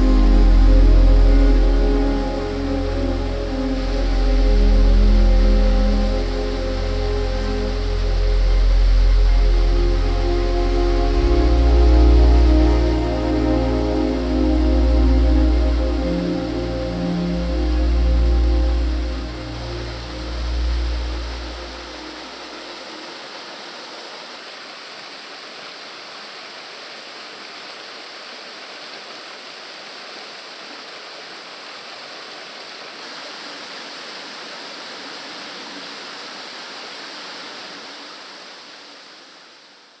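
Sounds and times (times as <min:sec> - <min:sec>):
waterfall rushing: 0:00.0 - 0:39.8.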